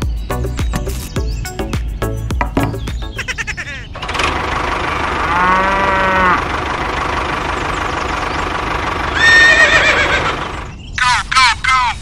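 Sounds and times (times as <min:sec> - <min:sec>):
low drawn-out animal call: 0:05.0 - 0:06.6.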